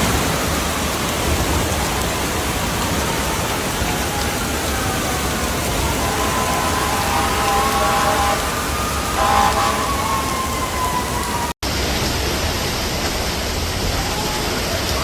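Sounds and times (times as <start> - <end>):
heavy rain: 0.0 - 15.0
running water: 0.0 - 15.0
drawn-out drifting tone: 5.6 - 11.4.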